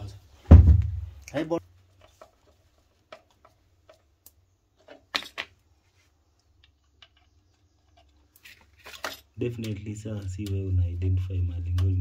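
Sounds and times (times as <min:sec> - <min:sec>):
clicks of small parts and tools: 0:06.4 - 0:10.6.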